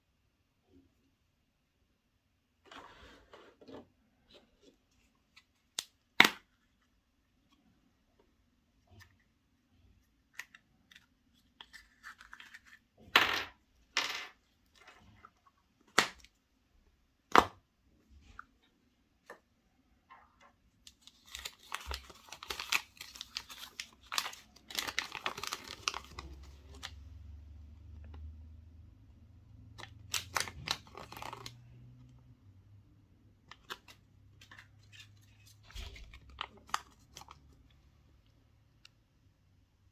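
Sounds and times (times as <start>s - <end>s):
foil wrapper tearing and crinkling: 21.2s - 26.9s, 30.1s - 31.5s.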